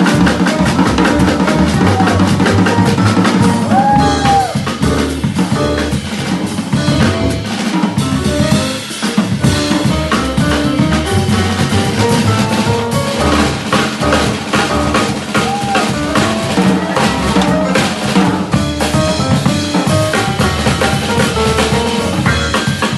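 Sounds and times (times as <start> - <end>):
bass: 0.0 - 22.9
drum kit played busily: 0.0 - 22.9
piano: 0.0 - 22.9.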